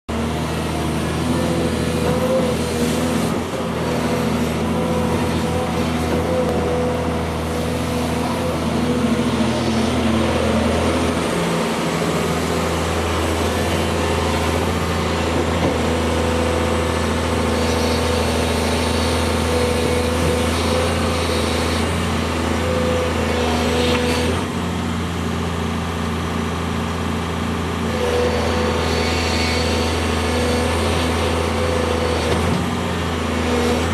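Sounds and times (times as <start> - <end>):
excavator diesel engine running: 0.1 - 33.9
whining tone: 0.5 - 24.5.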